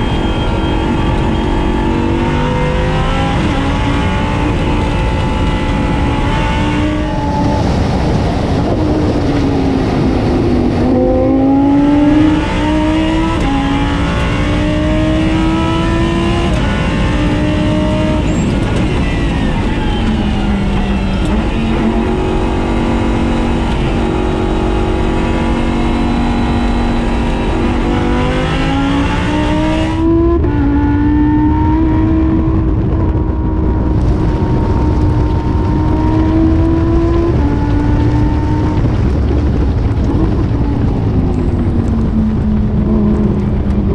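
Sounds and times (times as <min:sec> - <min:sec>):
race car engine accelerating: 0:00.0 - 0:43.9.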